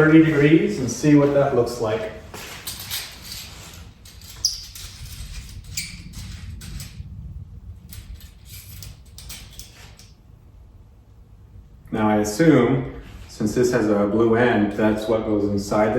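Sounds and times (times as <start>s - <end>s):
handling scrapes rustles and clicks: 2.2s - 7.1s.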